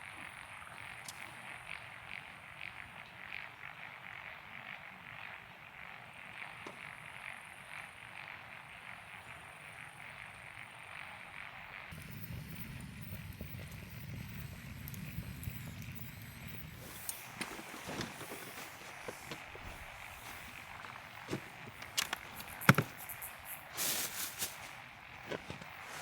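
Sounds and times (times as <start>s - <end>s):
frogs croaking: 0.0s - 26.0s
short rustle: 16.8s - 26.0s
sharp knocks and clicks: 20.8s - 23.3s.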